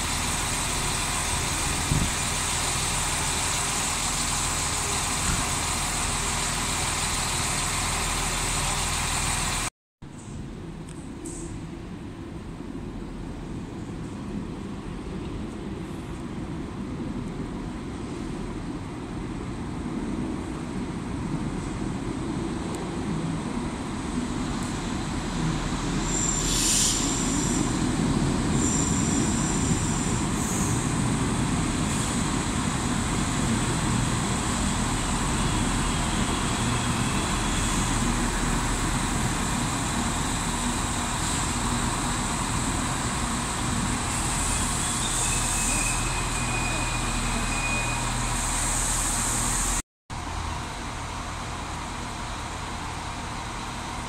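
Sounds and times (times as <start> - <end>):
diesel engine drone: 0.0 - 9.7, 21.5 - 54.0
rail running noise: 0.0 - 54.0
train wheel squeals: 25.6 - 49.8.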